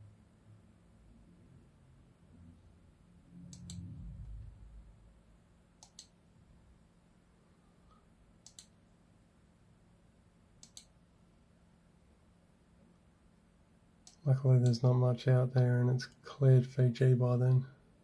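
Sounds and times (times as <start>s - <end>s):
low rumble: 3.2s - 5.2s
mouse button clicking: 3.5s - 3.8s, 5.8s - 6.1s, 8.4s - 8.7s, 10.6s - 10.9s.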